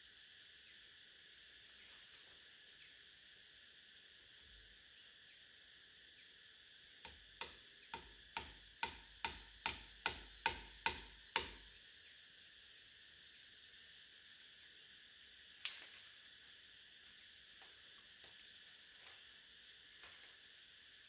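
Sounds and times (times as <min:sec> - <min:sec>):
sharp ringing knocks: 0:07.1 - 0:11.7.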